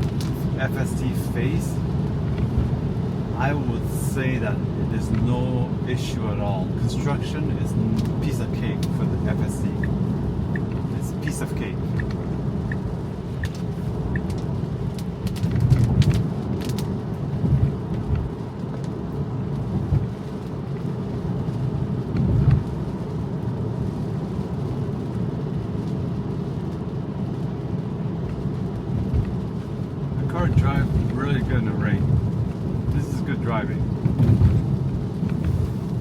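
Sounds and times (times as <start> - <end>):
road and tyre rumble in car: 0.0 - 36.0
faint ticks: 11.9 - 16.9.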